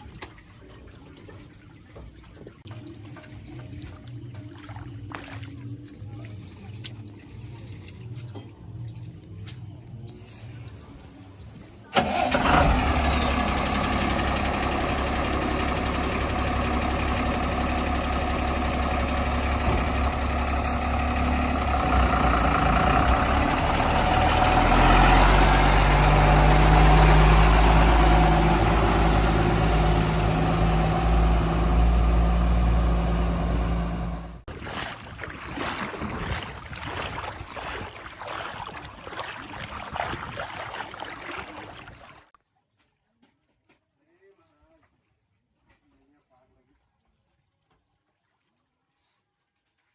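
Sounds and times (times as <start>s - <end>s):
heavy diesel engine revving: 12.0s - 34.5s.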